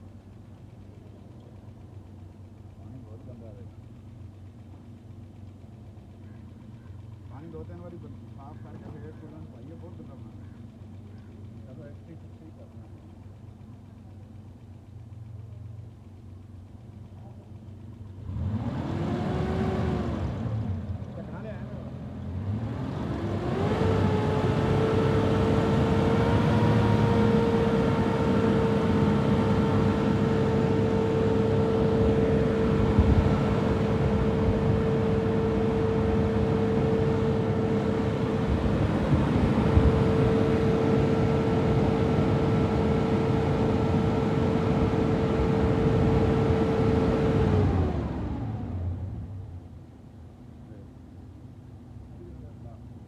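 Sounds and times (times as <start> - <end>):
engine revving with whine: 18.2 - 49.6.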